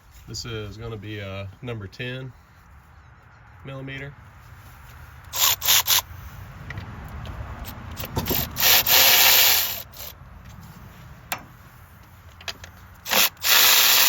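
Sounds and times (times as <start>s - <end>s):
cordless ratchet spinning bolts: 5.3s - 6.1s, 7.6s - 10.2s, 13.0s - 14.0s.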